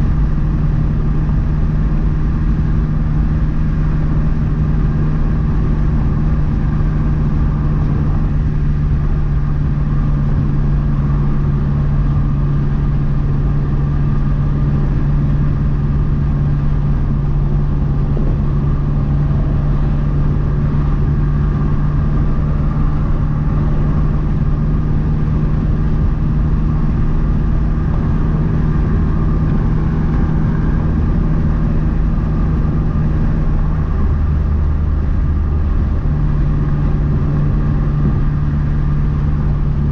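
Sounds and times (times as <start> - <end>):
car engine droning steadily: 0.0 - 39.9.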